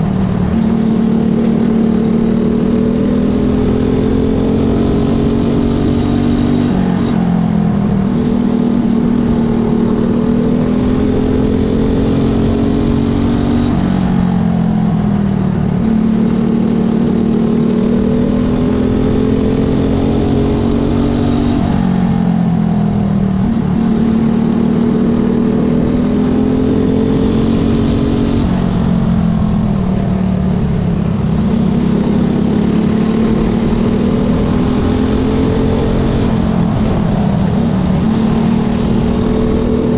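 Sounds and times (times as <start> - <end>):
racing motorcycle engine: 0.0 - 39.9.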